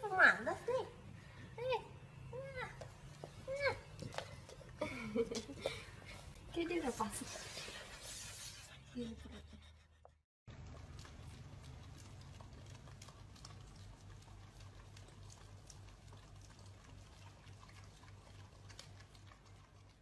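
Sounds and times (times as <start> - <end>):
dogs licking ice cream: 2.4 - 8.4, 10.5 - 20.0.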